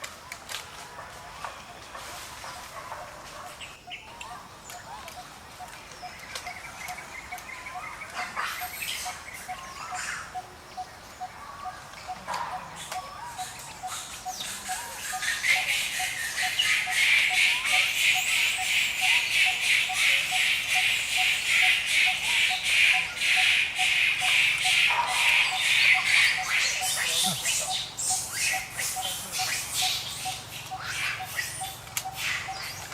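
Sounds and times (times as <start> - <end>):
rhythmic pulsing chirring: 12.1 - 32.5.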